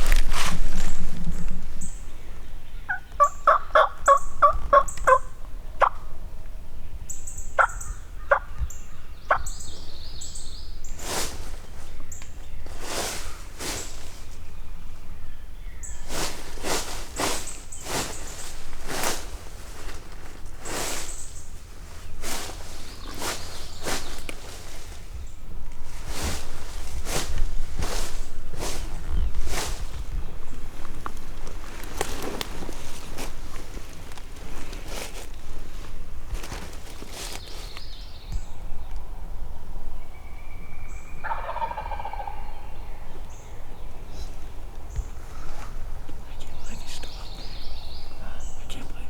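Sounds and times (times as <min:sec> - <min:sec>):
footsteps through dry leaves: 0:00.0 - 0:05.3, 0:08.6 - 0:38.7, 0:41.2 - 0:48.8
turkey gobbling: 0:02.7 - 0:06.2, 0:07.6 - 0:09.6, 0:41.2 - 0:43.2.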